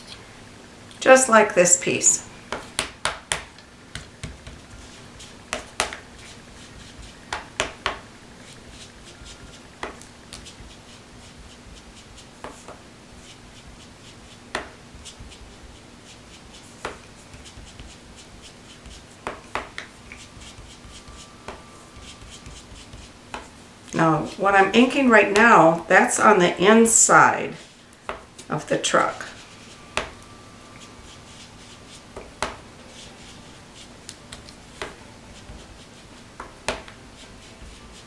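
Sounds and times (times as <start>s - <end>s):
faint steady hum: 0.0s - 38.0s
soft rubbing on card: 3.6s - 24.4s, 29.0s - 38.0s.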